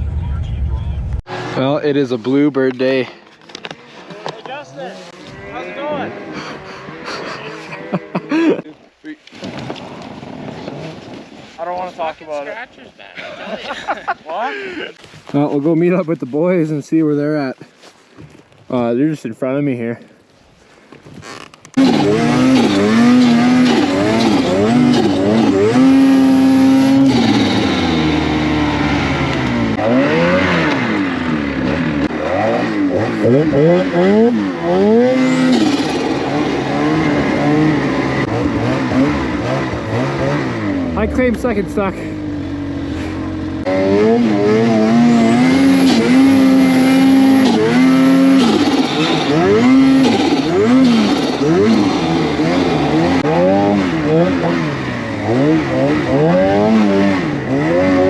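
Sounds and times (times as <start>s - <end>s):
snowmobile engine revving: 4.4s - 8.6s, 21.7s - 58.0s.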